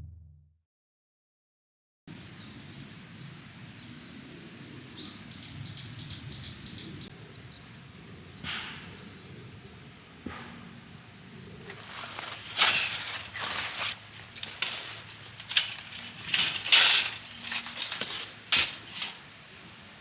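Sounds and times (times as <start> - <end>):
bird chirping: 2.1 - 10.8
woodland ambience: 2.1 - 20.0.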